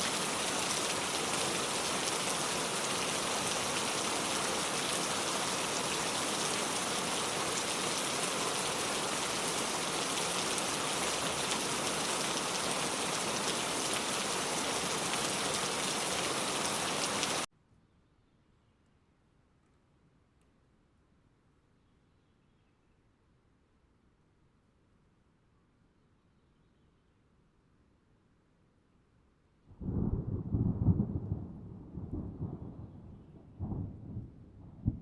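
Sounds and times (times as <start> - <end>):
rain falling steadily: 0.0 - 17.5, 29.8 - 35.0.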